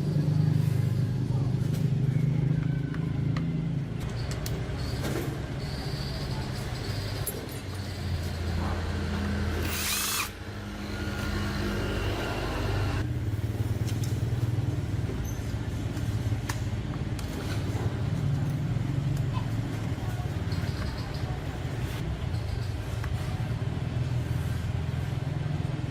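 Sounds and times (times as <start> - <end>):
small motor humming: 9.6 - 13.0.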